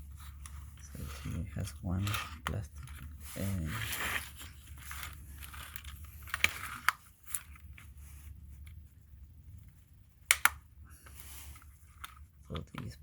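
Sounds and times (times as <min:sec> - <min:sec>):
plastic cover rustling: 0:00.0 - 0:08.7
sharp plastic clicks: 0:10.3 - 0:10.6.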